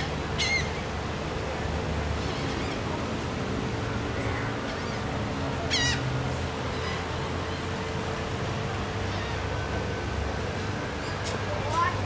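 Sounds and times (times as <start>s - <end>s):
bird squawk: 0.4s - 0.8s, 5.7s - 6.0s.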